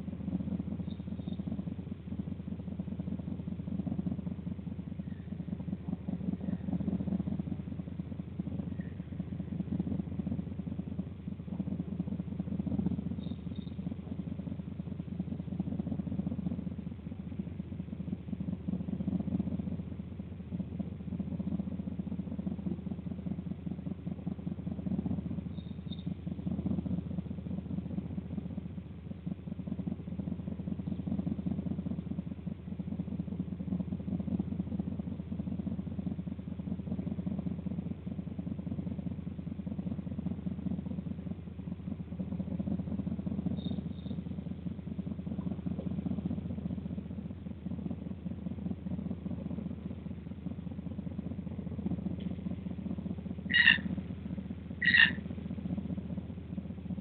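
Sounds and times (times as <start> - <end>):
steady low rumble: 0.0 - 57.0
loud short bird call: 53.5 - 53.8, 54.8 - 55.2.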